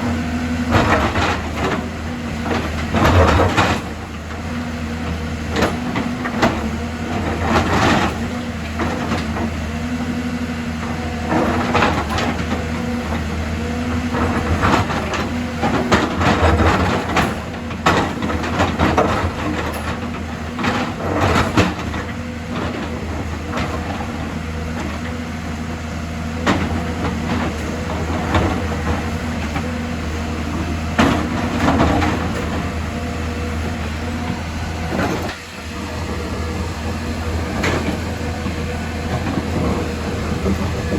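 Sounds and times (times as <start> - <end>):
excavator engine running: 0.0 - 40.9.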